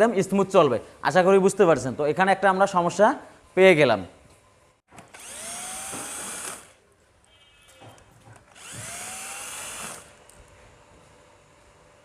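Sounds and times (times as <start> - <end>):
power drill motor whining: 5.0 - 6.8, 8.5 - 10.4.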